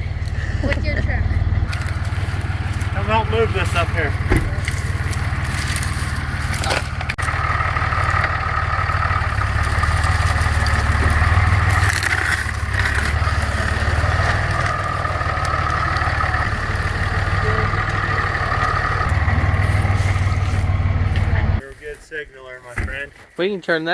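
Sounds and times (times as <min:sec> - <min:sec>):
truck engine running: 0:00.0 - 0:21.6
sharp cracks: 0:01.7 - 0:20.0.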